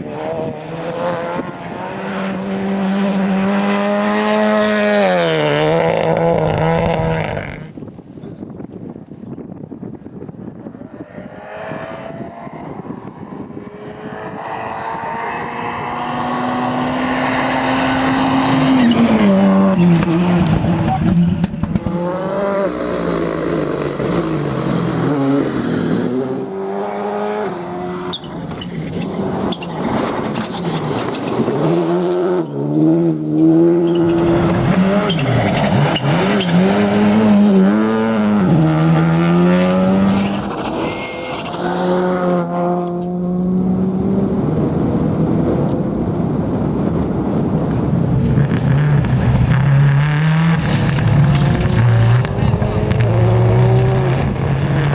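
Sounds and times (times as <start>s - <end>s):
rally car engine revving: 0.0s - 7.7s, 10.5s - 54.9s
exhaust pops: 17.9s - 22.2s, 47.7s - 54.6s
tyre squeal: 18.1s - 21.5s, 28.0s - 29.8s, 33.8s - 37.7s, 40.3s - 41.8s, 49.1s - 54.0s.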